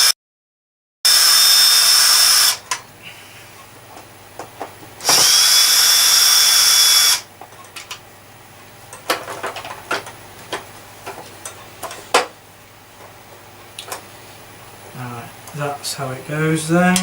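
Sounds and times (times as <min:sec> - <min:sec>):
power drill whining: 0:01.1 - 0:02.6, 0:05.0 - 0:07.2
parts clicking and knocking: 0:08.9 - 0:12.3.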